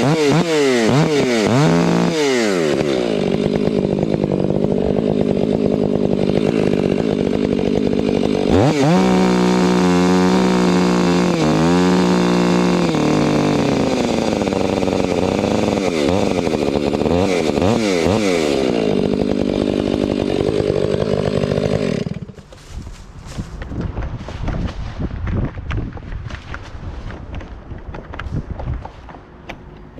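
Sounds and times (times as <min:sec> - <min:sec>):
chainsaw engine revving: 0:00.0 - 0:23.5.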